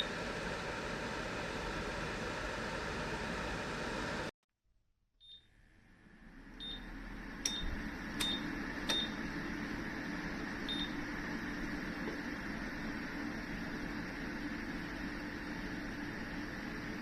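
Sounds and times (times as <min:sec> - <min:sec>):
fan noise: 0:00.0 - 0:04.3, 0:05.5 - 0:17.0
appliance beeping: 0:05.2 - 0:05.6, 0:06.6 - 0:12.8.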